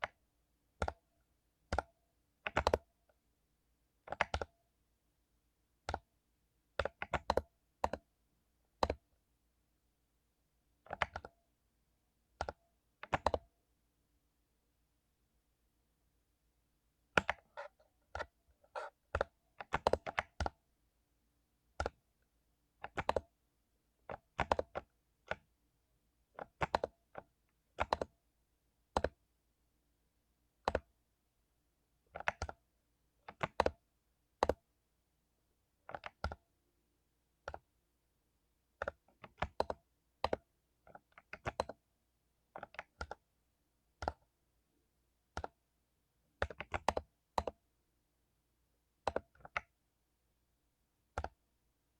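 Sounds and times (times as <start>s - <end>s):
mechanical keyboard typing: 2.5s - 2.9s, 4.0s - 4.5s, 5.9s - 6.1s, 6.8s - 8.1s, 8.8s - 9.1s, 10.8s - 11.3s, 12.4s - 13.5s, 17.2s - 20.6s, 22.8s - 23.3s, 24.1s - 25.5s, 26.4s - 28.2s, 28.9s - 29.2s, 32.2s - 32.6s, 33.2s - 33.8s, 35.9s - 36.4s, 38.8s - 41.8s, 42.6s - 43.2s, 45.4s - 45.6s, 46.4s - 47.6s, 49.0s - 49.7s, 51.1s - 51.4s.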